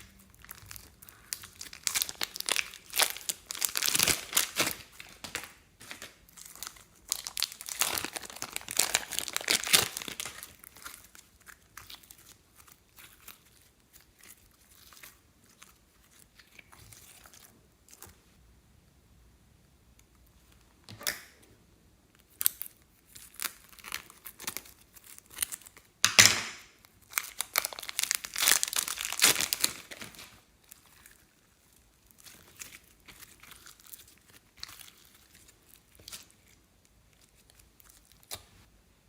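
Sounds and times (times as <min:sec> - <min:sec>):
plastic bags crinkling: 0:00.0 - 0:15.0, 0:27.0 - 0:31.3.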